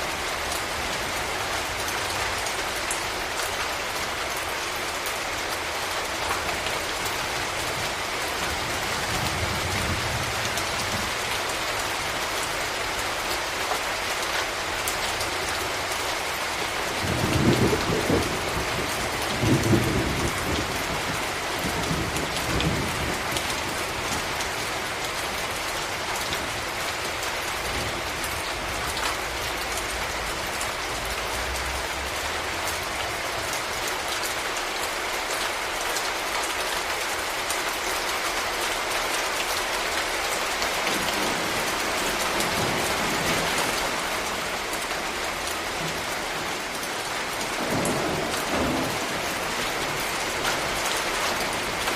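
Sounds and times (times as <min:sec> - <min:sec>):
rain falling: 0:00.0 - 0:51.9
thunder rumbles: 0:16.9 - 0:24.7, 0:40.9 - 0:44.8, 0:45.4 - 0:51.9.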